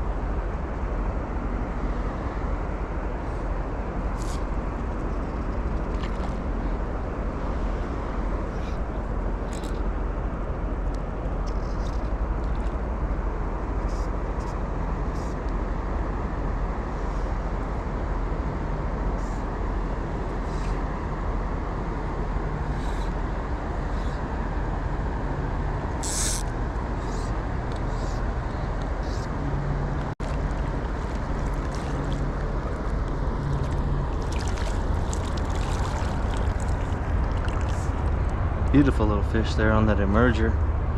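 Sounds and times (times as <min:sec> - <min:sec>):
river water roaring: 0:00.0 - 0:40.9.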